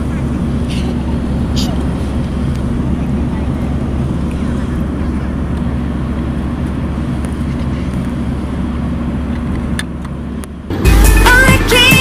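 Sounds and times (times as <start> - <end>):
low vehicle rumble: 0.0 - 12.0
pop music with singing: 10.7 - 12.0.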